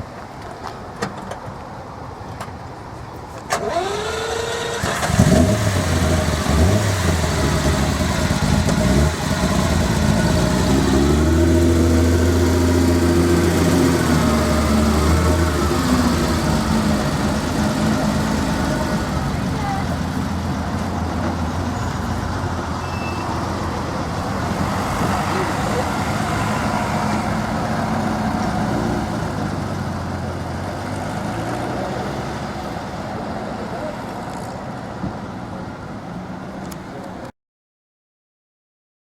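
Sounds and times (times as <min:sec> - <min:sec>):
car engine starting and idling: 0:03.3 - 0:37.3
starter motor whining: 0:03.5 - 0:11.5.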